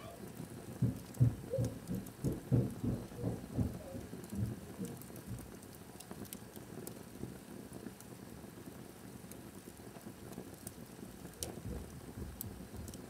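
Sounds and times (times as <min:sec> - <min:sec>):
wood fire crackling: 0:00.0 - 0:13.0
low muffled thumps: 0:00.8 - 0:05.5.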